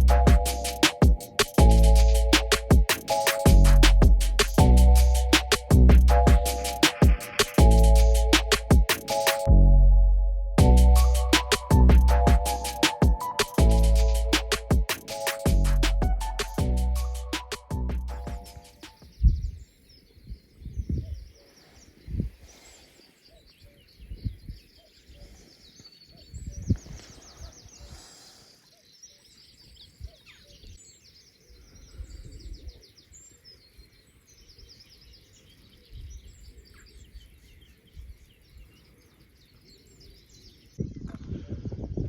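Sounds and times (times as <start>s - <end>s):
dull low thumps: 0.0s - 2.9s, 3.5s - 8.9s, 9.5s - 14.9s, 15.5s - 18.5s
songbirds singing: 18.3s - 42.0s.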